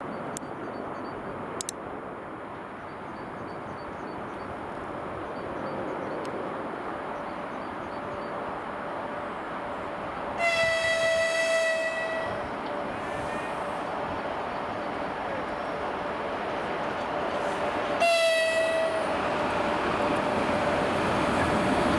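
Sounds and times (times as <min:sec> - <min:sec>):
freight train rumbling: 0:00.0 - 0:21.9
locomotive horn blast: 0:10.4 - 0:13.9, 0:17.5 - 0:19.2.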